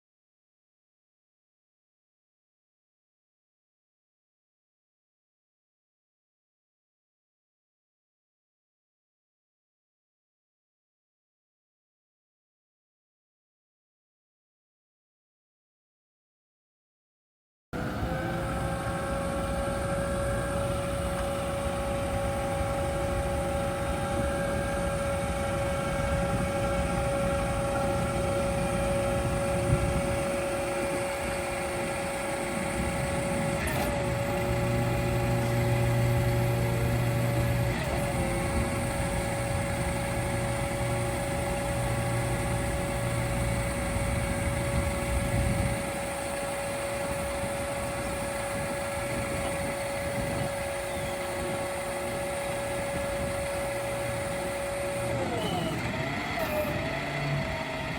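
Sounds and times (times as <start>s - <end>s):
hydraulic whine: 17.8s - 57.9s
truck engine rumble: 17.8s - 57.9s.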